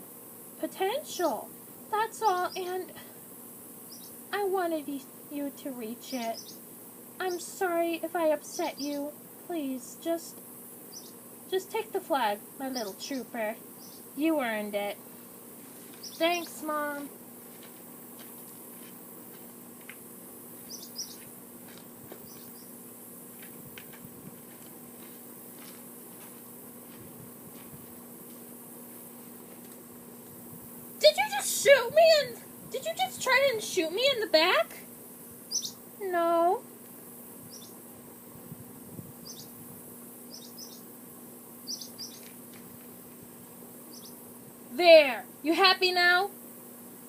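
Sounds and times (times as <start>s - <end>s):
background hiss: 0.0s - 47.0s
faint steady hum: 0.0s - 47.0s
small birds chirping: 0.6s - 23.5s, 29.4s - 36.6s, 37.4s - 37.9s, 39.2s - 41.0s, 41.6s - 42.8s, 43.8s - 46.0s
bird chirps: 3.9s - 4.2s, 6.1s - 6.6s, 7.2s - 7.6s, 8.5s - 9.1s, 10.9s - 11.2s, 12.7s - 14.2s, 16.0s - 16.6s, 20.6s - 21.3s, 22.2s - 22.8s, 35.5s - 35.8s, 37.5s - 37.8s, 39.2s - 39.5s, 40.3s - 40.9s, 41.6s - 42.3s, 43.9s - 44.2s.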